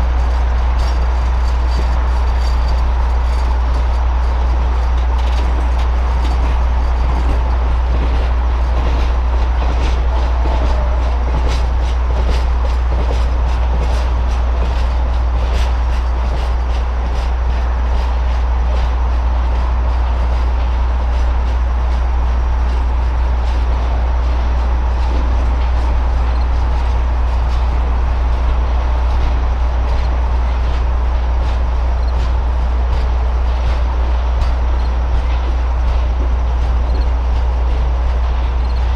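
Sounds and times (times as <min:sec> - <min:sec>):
train rolling past: 0:00.0 - 0:38.9.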